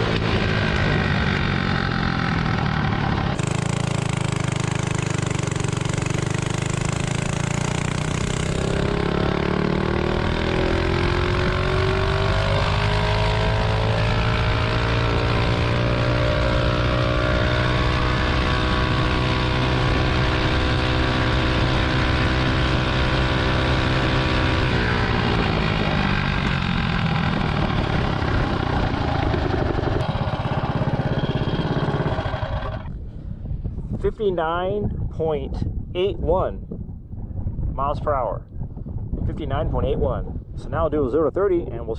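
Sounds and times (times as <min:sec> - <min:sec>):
mini bike engine at full throttle: 0:00.0 - 0:33.0.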